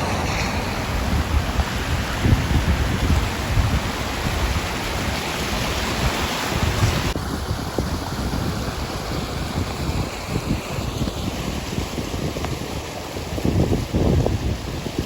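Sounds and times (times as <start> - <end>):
rushing river water: 0.0 - 15.0
wind buffeting microphone: 0.0 - 15.0.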